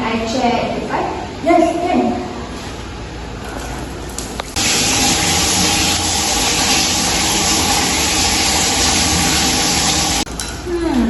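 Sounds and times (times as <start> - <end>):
sink tap turned on: 4.6 - 10.3
water gushing into sink: 4.6 - 10.3.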